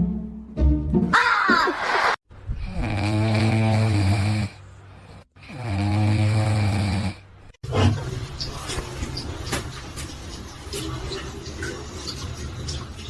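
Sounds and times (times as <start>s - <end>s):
person snoring: 2.6s - 7.2s.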